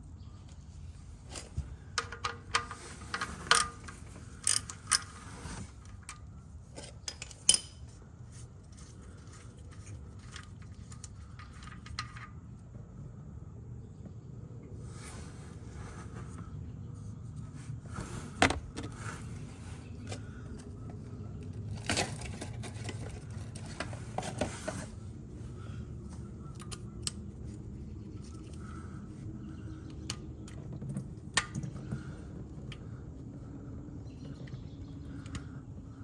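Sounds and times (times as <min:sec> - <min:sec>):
metal tools clinking and scraping: 0:01.4 - 0:06.1, 0:06.7 - 0:07.9.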